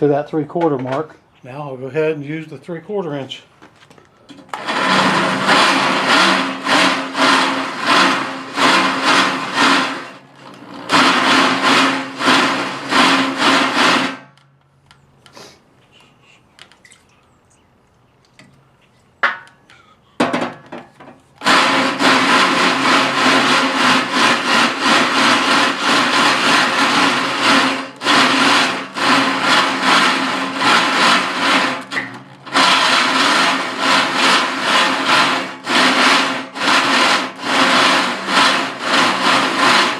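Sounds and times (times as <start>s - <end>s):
electric drill grinding through steel: 4.5s - 14.5s, 21.4s - 39.9s.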